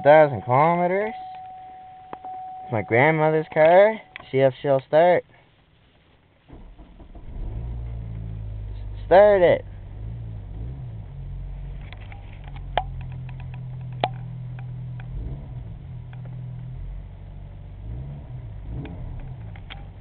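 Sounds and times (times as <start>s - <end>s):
car engine running: 6.5s - 20.0s.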